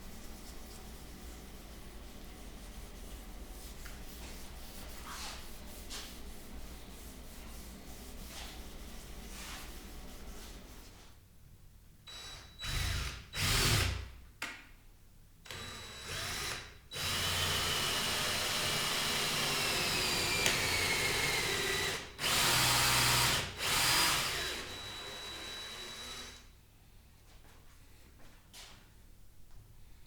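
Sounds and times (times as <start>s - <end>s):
electric power drill whine: 15.5s - 26.4s.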